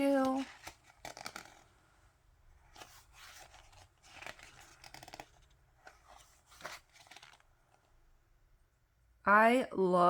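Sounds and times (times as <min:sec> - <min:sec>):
book pages turning: 0:00.0 - 0:07.9.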